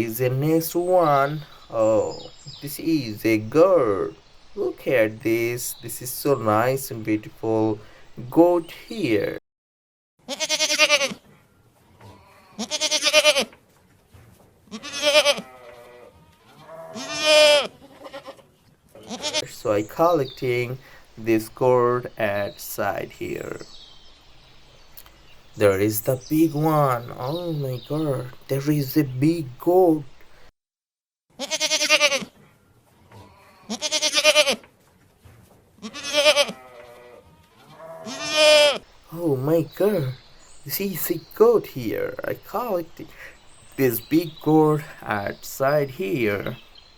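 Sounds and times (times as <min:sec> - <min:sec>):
goat bleating: 0:10.2 - 0:11.2, 0:12.0 - 0:13.6, 0:14.7 - 0:20.7, 0:31.4 - 0:32.4, 0:33.0 - 0:34.7, 0:35.8 - 0:46.6.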